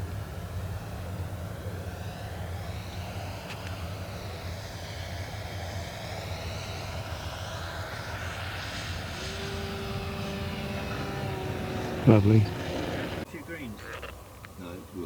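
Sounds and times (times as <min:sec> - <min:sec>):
model aeroplane motor whine: 0:00.0 - 0:13.3
steady hum: 0:05.3 - 0:13.3.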